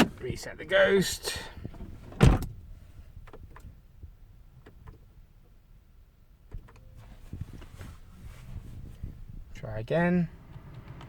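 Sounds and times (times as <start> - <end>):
car door shutting: 1.7 - 2.6.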